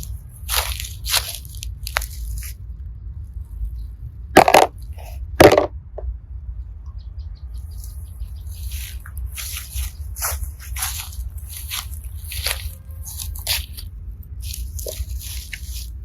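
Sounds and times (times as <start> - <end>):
slime squelching by hand: 0.0 - 2.6, 8.6 - 16.0.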